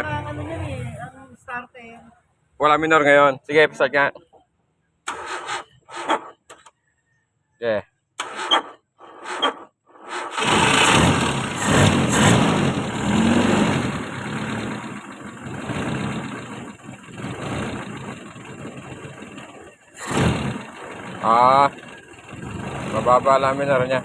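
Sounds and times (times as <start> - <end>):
engine cranking and starting: 5.0 - 6.7, 8.2 - 24.0
engine uneven idle: 13.9 - 24.0.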